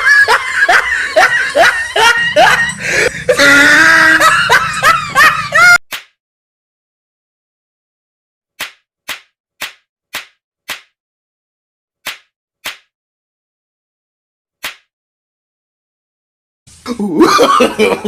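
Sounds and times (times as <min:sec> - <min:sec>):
sharp slapping smacks: 0:05.9 - 0:06.2, 0:08.6 - 0:11.0, 0:12.0 - 0:12.9, 0:14.6 - 0:14.9.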